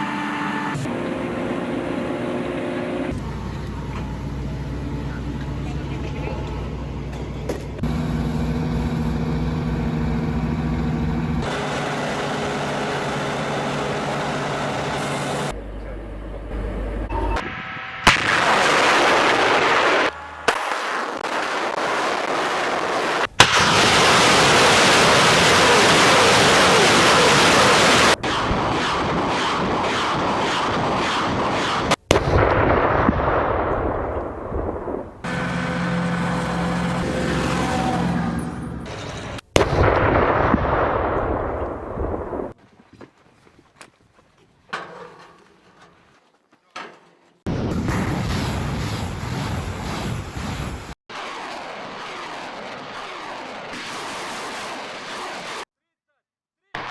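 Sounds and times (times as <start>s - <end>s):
vehicle hum: 0.0s - 18.0s, 35.2s - 39.5s
rocket launch blasts: 17.4s - 35.3s, 39.6s - 42.6s, 47.5s - 55.7s
rockets rushing overhead: 18.0s - 35.3s, 47.5s - 55.7s.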